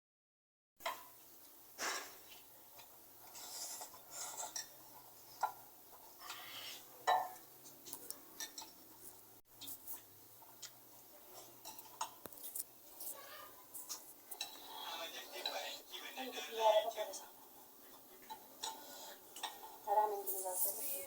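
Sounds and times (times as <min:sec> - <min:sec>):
cutlery and dishes clinking: 0:01.8 - 0:09.0, 0:09.6 - 0:15.8, 0:17.1 - 0:19.9.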